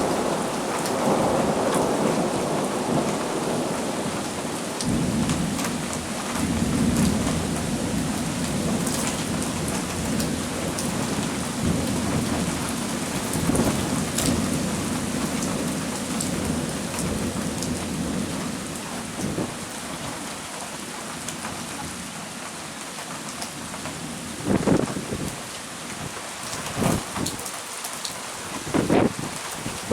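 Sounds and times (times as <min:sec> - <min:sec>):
rolling thunder rumble: 0:00.0 - 0:18.4
heavy rain: 0:00.0 - 0:29.9.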